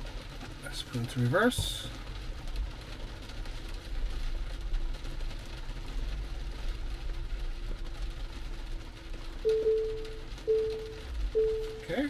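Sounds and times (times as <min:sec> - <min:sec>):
hard rain on car roof: 0:00.0 - 0:12.0
proximity warning beeping: 0:09.5 - 0:12.0.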